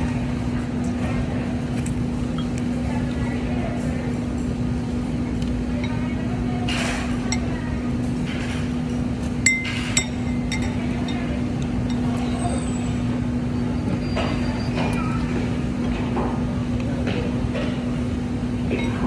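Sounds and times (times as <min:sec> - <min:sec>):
tableware clinking: 0:09.4 - 0:12.5.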